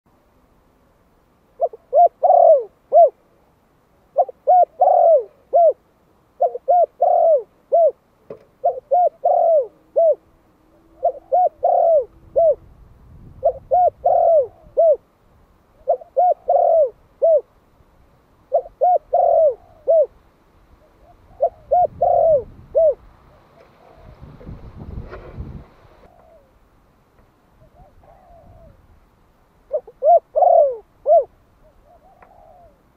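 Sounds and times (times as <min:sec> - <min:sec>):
dove cooing: 0:01.6 - 0:03.2, 0:04.1 - 0:15.1, 0:15.8 - 0:17.5, 0:18.5 - 0:20.2, 0:20.8 - 0:24.6, 0:25.9 - 0:26.6, 0:27.6 - 0:28.9, 0:29.7 - 0:32.9.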